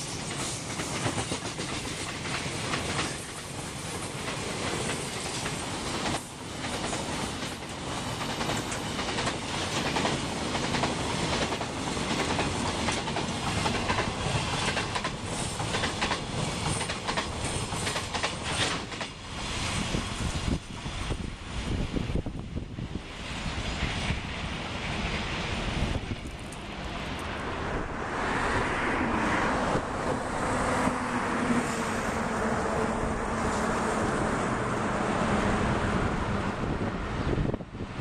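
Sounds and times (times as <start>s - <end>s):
freight train wheels clattering: 0.0s - 20.6s.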